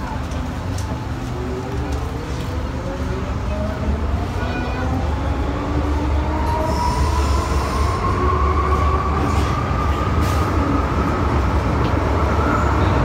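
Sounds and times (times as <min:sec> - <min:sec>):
metro train running: 0:00.0 - 0:13.0.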